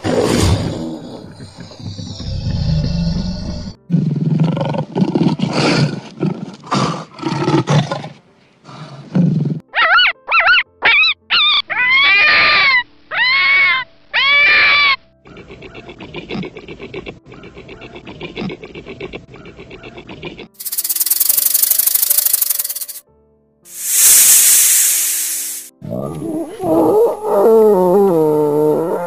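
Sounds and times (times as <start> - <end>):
harsh rasping animal roars: 0.0 - 9.7, 15.3 - 20.6
high rising and falling calls: 20.6 - 23.0.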